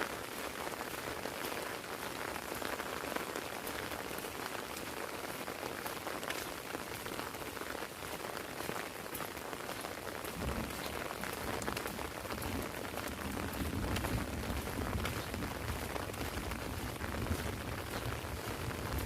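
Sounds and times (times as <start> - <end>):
heavy rain on an umbrella: 0.0 - 19.0.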